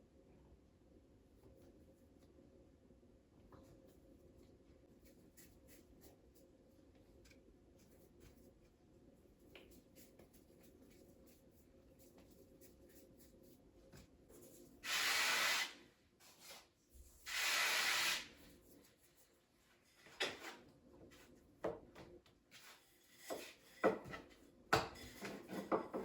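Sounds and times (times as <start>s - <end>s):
loud hissing spray bursts: 14.8s - 15.8s, 17.3s - 18.4s.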